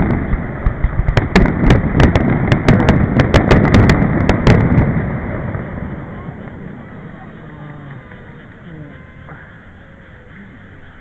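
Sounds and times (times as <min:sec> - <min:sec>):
deep booming rumble: 0:00.0 - 0:07.5
fireworks cracking and popping: 0:00.0 - 0:09.4.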